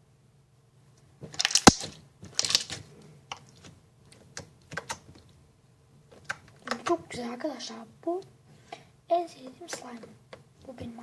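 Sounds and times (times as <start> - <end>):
loud slime pop: 1.4 - 2.8.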